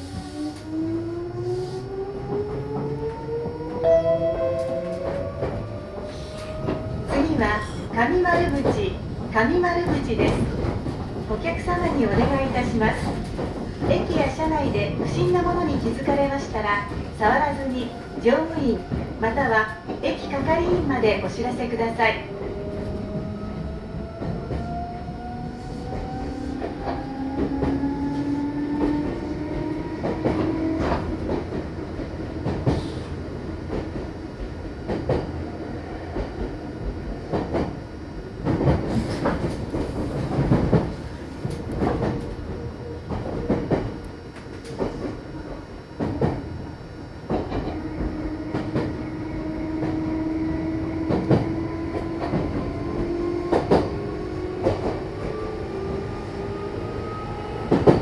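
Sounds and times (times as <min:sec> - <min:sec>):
train running rumble: 0:00.0 - 0:58.0
train motor whine: 0:42.9 - 0:58.0.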